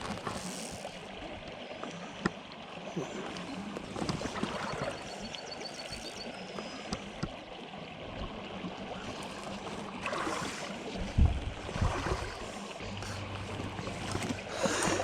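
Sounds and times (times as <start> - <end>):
stream flowing: 0.0 - 15.0
low rumbling thumps: 11.0 - 15.0.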